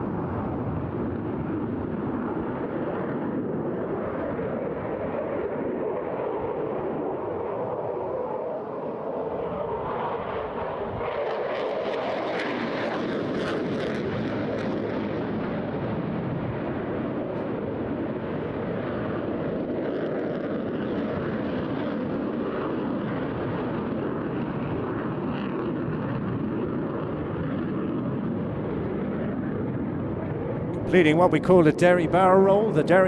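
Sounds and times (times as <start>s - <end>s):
fighter jet roaring: 0.0s - 33.0s.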